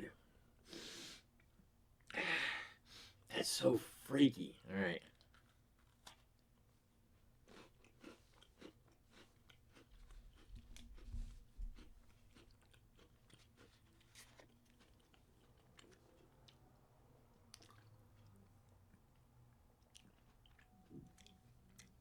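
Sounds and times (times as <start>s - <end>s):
person chewing crunchy cookie: 5.1s - 22.0s.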